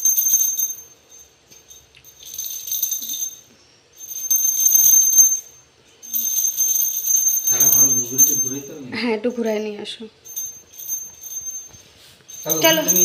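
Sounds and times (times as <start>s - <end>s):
hand bell ringing: 0.0s - 9.0s, 10.2s - 13.0s.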